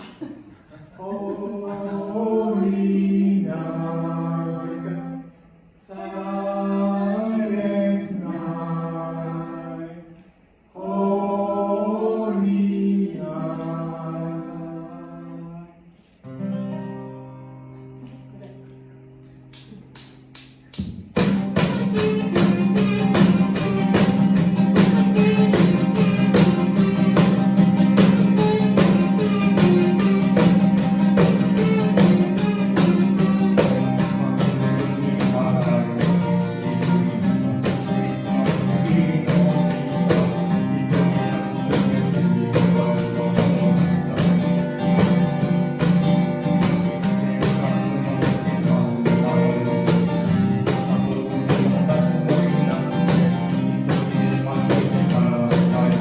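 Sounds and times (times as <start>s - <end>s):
acoustic guitar strumming: 12.0s - 56.0s
live band music: 19.3s - 56.0s.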